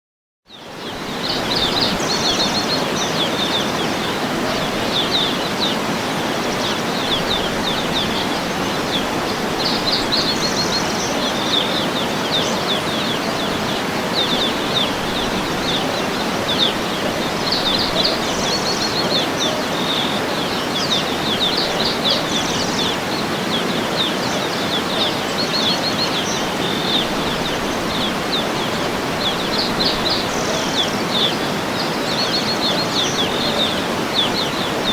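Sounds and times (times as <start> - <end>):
songbirds chirping and singing: 0.5 - 34.9.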